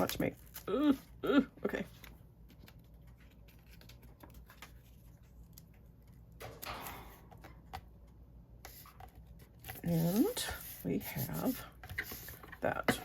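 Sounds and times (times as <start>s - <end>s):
paper rustle: 1.9s - 6.2s.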